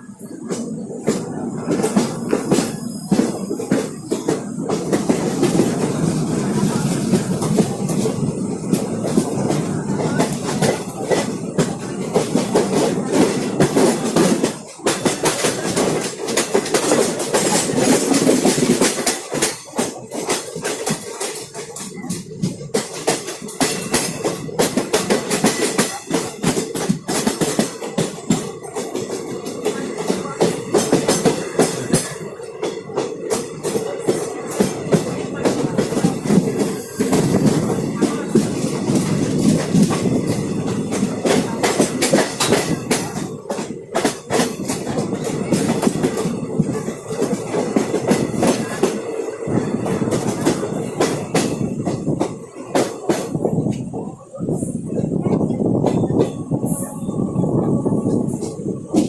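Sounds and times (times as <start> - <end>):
train wheels rumbling: 0.0 - 59.0
wheels clacking over rail joints: 0.5 - 53.9.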